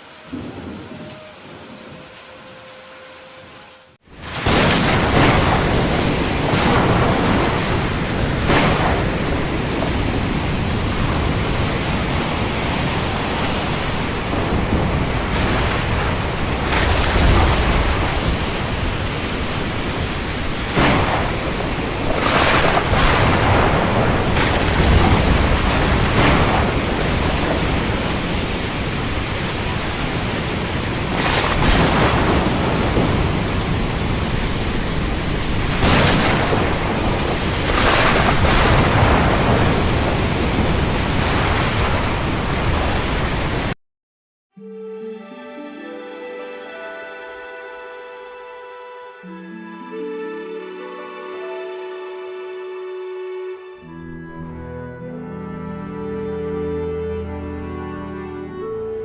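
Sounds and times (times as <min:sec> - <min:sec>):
heavy rain pouring: 0:00.0 - 0:43.8.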